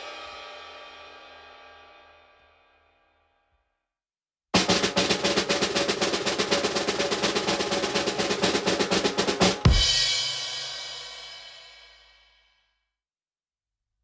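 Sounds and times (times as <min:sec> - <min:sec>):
cymbal crash: 0:00.0 - 0:02.8, 0:09.6 - 0:12.3
snare drum roll: 0:04.6 - 0:11.8.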